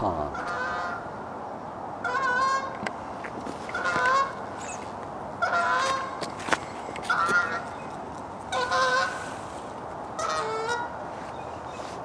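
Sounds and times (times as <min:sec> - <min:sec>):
goose honking: 0:00.3 - 0:01.0, 0:02.0 - 0:02.7, 0:03.7 - 0:04.4, 0:05.4 - 0:06.2, 0:07.1 - 0:07.6, 0:08.5 - 0:09.4, 0:10.2 - 0:10.9.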